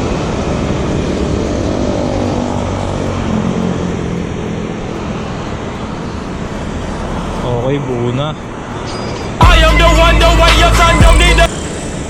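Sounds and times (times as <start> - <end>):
vehicle engine passing close: 0.0 - 8.5
road traffic noise: 0.0 - 12.0.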